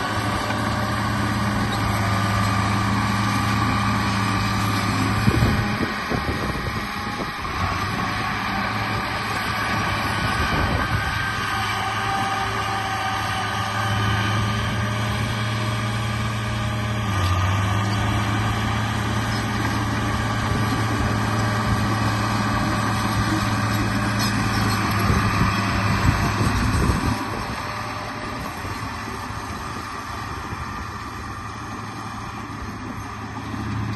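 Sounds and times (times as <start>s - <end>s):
toy bulldozer motor droning: 0.0s - 33.9s.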